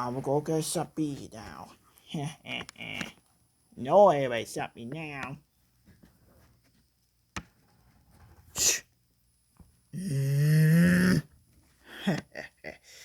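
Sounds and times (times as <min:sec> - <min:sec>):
short breathy hiss: 0:08.5 - 0:08.9
person's drawn-out vocal cry: 0:10.0 - 0:11.3.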